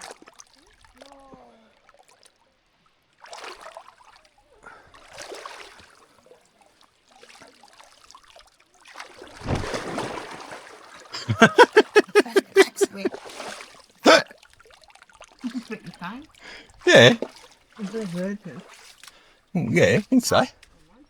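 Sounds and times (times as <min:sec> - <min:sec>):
water splashing: 0:09.4 - 0:10.4
short voice sound: 0:11.2 - 0:13.1, 0:15.5 - 0:17.2, 0:19.6 - 0:20.5.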